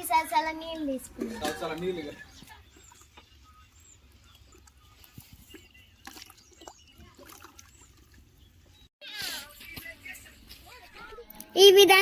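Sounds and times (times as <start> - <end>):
water trickling and splashing: 4.4 - 8.7.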